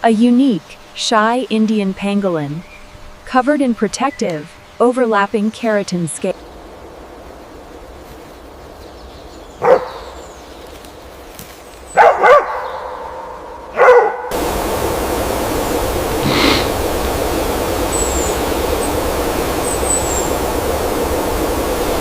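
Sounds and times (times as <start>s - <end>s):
dog barking: 9.6s - 10.1s, 12.0s - 14.3s
rushing like flowing water: 14.3s - 22.0s.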